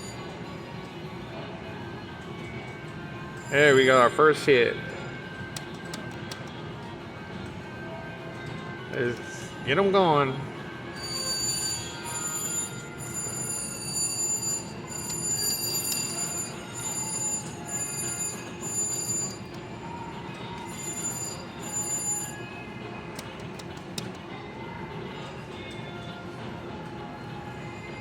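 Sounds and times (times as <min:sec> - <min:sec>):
slot machine electronic chime: 0:03.4 - 0:04.5, 0:10.9 - 0:22.6.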